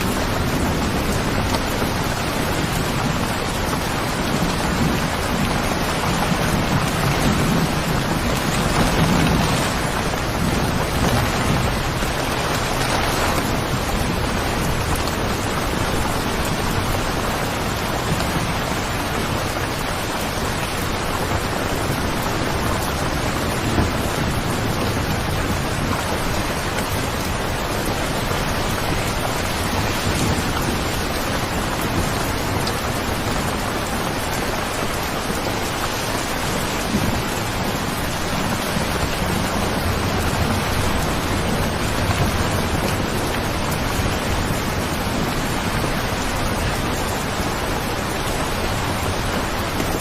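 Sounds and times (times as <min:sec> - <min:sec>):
distant thunder rumble: 0:00.0 - 0:50.0
heavy rain falling: 0:00.0 - 0:50.0.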